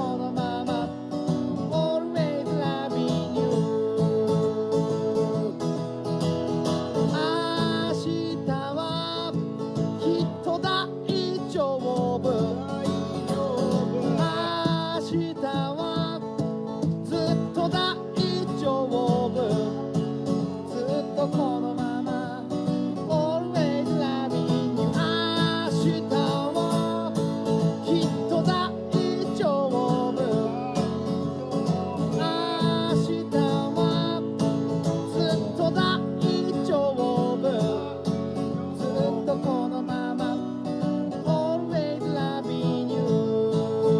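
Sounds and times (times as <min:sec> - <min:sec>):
acoustic guitar strumming chords: 0:00.0 - 0:43.9.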